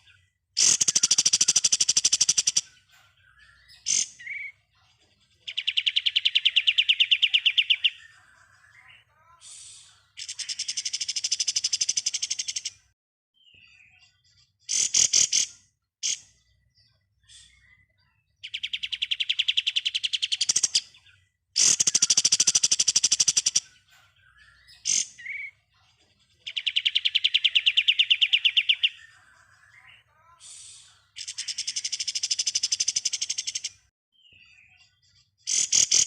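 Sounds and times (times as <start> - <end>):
songbird rattling trill: 0.6 - 2.8.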